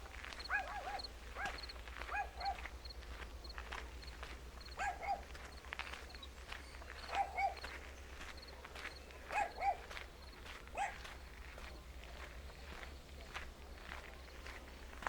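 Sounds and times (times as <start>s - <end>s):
footsteps: 0.0s - 15.0s.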